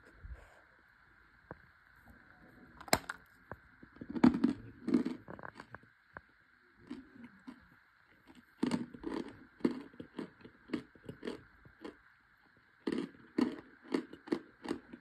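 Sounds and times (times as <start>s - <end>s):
crunchy chewing: 3.9s - 15.0s.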